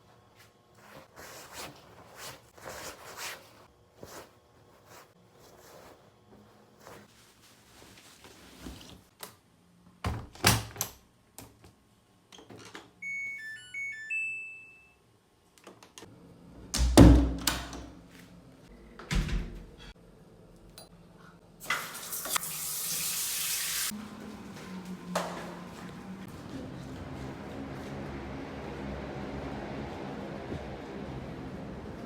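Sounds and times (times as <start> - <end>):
electronic appliance beeps: 13.0 - 15.0.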